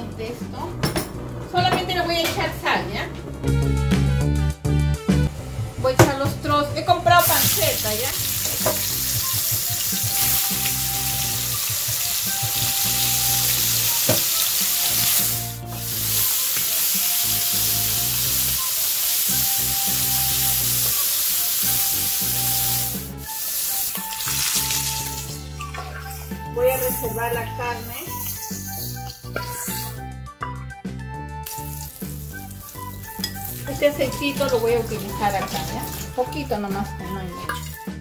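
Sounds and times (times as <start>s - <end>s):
pork sizzling in hot oil: 7.2s - 27.2s, 27.8s - 30.0s, 31.4s - 36.4s, 37.5s - 38.0s.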